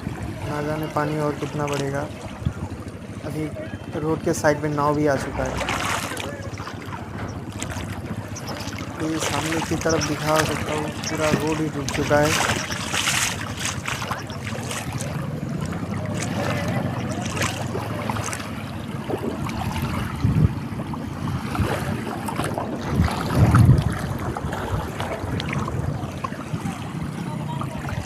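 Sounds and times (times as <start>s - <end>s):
floodwater rushing: 0.0s - 28.0s
low bumps: 4.2s - 18.5s.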